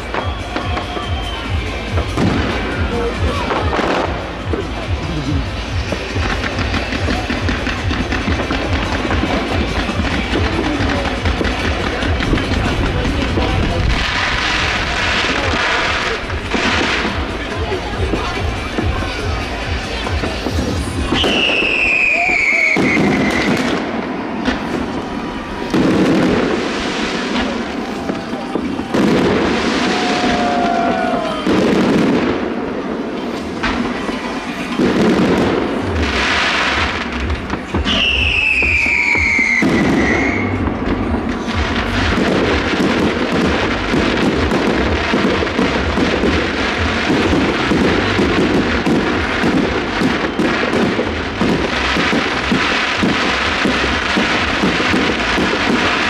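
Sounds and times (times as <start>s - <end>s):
firework high falling whistle: 0.0s - 4.1s, 21.0s - 31.8s, 37.7s - 40.6s
firework crackling: 0.0s - 56.0s.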